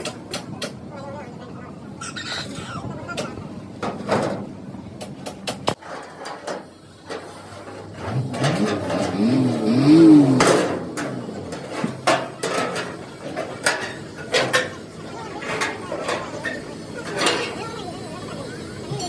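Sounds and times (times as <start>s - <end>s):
metal knocks and clatter: 3.2s - 17.8s.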